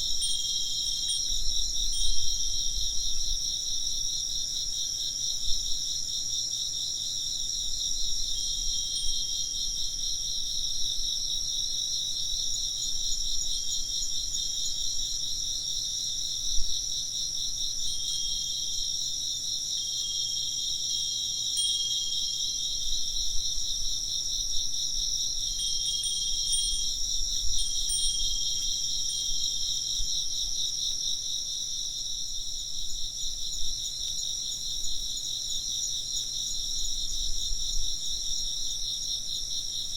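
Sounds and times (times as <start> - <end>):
insects chirping: 0.0 - 39.9
wind chime ringing: 21.6 - 22.6, 25.6 - 29.6.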